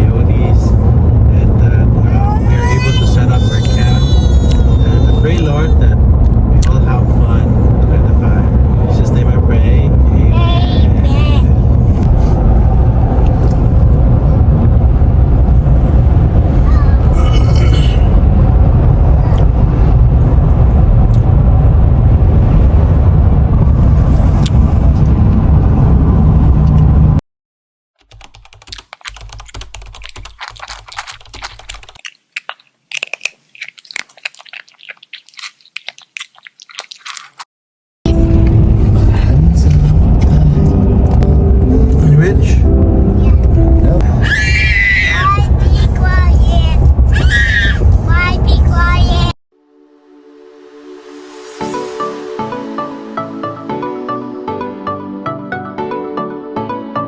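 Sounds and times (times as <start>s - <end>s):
vehicle road rumble: 0.0s - 27.2s, 38.1s - 49.4s
scattered crackling and clicking: 28.0s - 37.4s.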